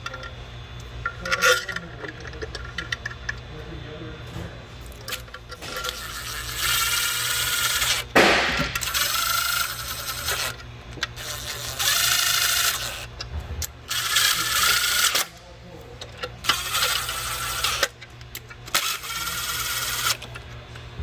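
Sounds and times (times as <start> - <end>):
power tool whirring: 4.9 - 15.4, 16.4 - 20.4
sharp clunk: 8.2 - 9.0.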